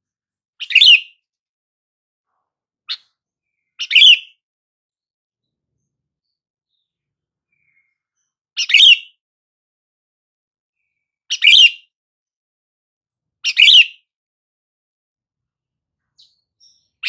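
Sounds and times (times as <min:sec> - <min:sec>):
bulbul calling: 0:03.8 - 0:04.3, 0:08.6 - 0:09.1.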